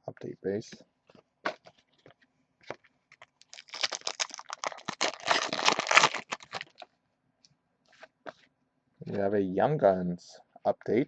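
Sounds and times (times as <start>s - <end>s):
foil wrapper and cards crinkling: 3.1s - 6.9s.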